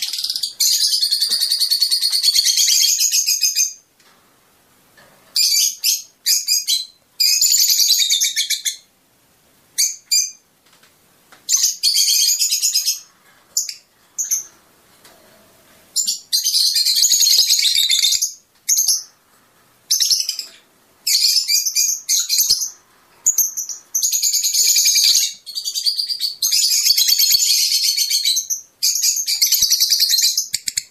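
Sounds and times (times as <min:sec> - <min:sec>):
lovebird twittering: 0:19.9 - 0:30.9.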